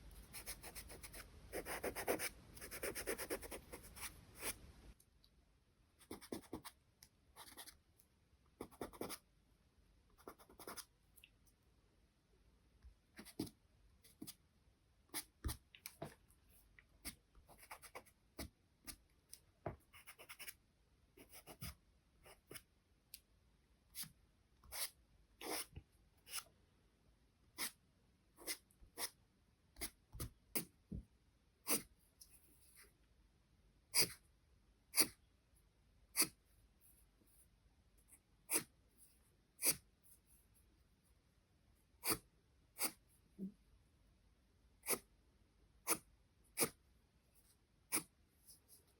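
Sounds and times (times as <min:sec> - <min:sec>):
pencil scratching on paper: 0:00.2 - 0:04.6, 0:06.0 - 0:06.8, 0:07.4 - 0:07.8, 0:08.6 - 0:09.2, 0:10.2 - 0:10.9, 0:17.0 - 0:18.5, 0:19.9 - 0:20.6, 0:21.2 - 0:22.6, 0:24.7 - 0:25.7, 0:38.5 - 0:38.8, 0:39.6 - 0:40.4, 0:42.0 - 0:43.1, 0:44.8 - 0:45.1, 0:45.8 - 0:46.8, 0:47.9 - 0:48.9.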